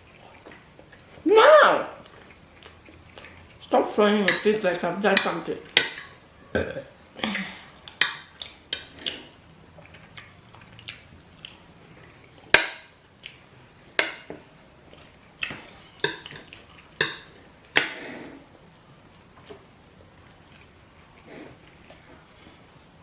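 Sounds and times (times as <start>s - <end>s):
spoons clinking on plates: 5.1s - 6.2s.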